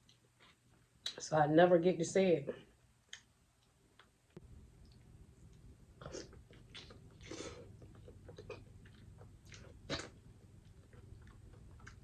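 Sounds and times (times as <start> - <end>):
person chewing food: 4.8 - 12.0.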